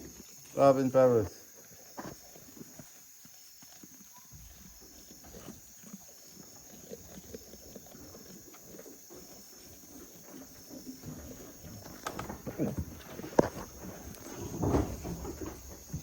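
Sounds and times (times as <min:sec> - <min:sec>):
faint rustling: 0:06.8 - 0:16.0.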